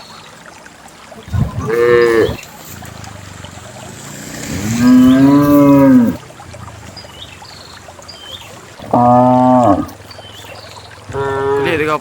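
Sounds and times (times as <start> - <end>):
cow mooing: 1.6 - 2.4, 4.5 - 6.2, 8.8 - 9.9.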